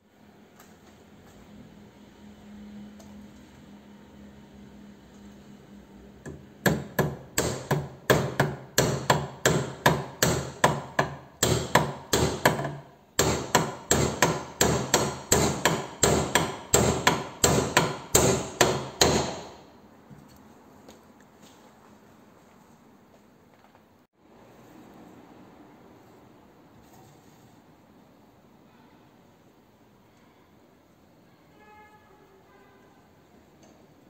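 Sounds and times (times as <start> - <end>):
hammer blows: 6.3 - 19.7.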